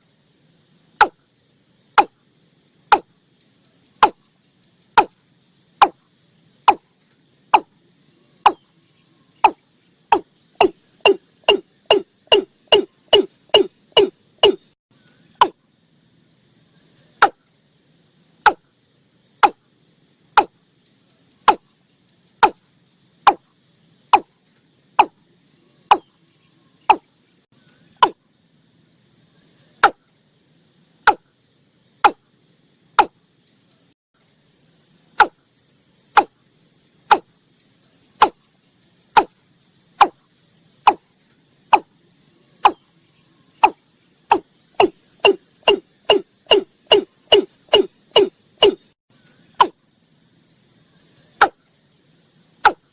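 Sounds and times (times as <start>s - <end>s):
crickets trilling: 0.0s - 52.9s
bird calling hollow sliding notes: 9.4s - 15.6s, 21.5s - 21.7s, 25.9s - 26.1s, 42.6s - 42.8s, 43.6s - 48.9s, 49.5s - 49.8s.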